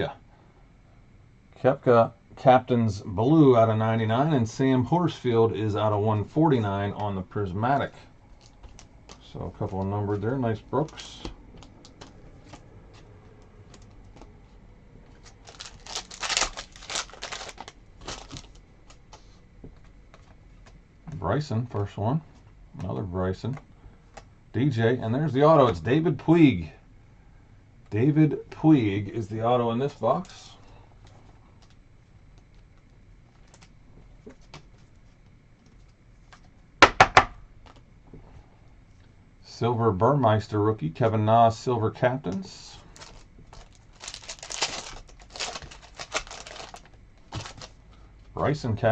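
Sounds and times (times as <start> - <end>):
foil pack crinkling and tearing: 15.1 - 19.1, 42.9 - 47.8.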